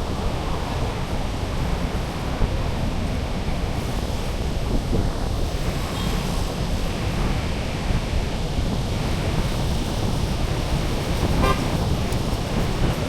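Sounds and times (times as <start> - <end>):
street and wind rumble: 0.0 - 13.0
vehicle horn toot: 11.3 - 12.0.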